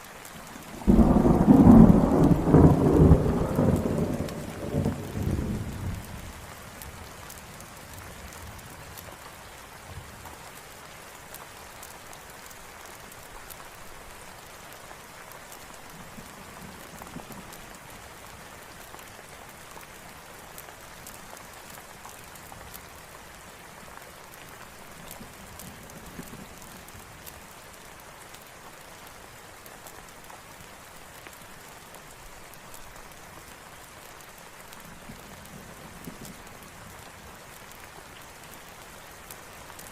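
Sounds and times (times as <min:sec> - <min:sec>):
steady rain: 0:00.0 - 0:39.9
thunder rumble: 0:00.7 - 0:06.1.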